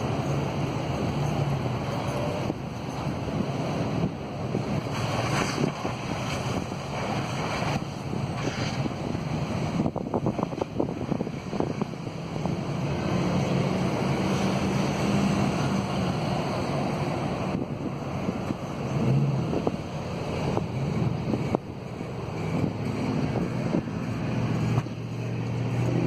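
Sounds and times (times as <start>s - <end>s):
outdoor rumble: 0.0s - 26.0s
wind buffeting microphone: 0.0s - 26.0s
crackles: 4.8s - 8.9s.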